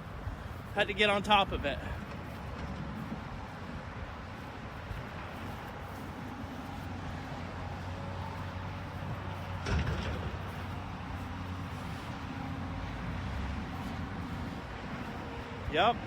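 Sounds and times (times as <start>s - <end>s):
heavy machine engine running: 1.9s - 16.0s
loud bang: 9.6s - 10.5s.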